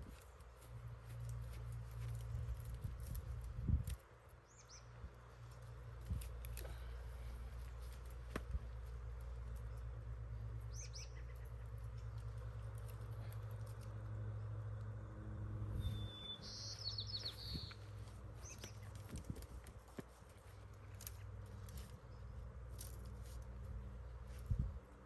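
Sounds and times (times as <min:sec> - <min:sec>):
steady low rumble: 0:00.0 - 0:25.0
small birds chirping: 0:00.1 - 0:14.1, 0:15.7 - 0:19.6.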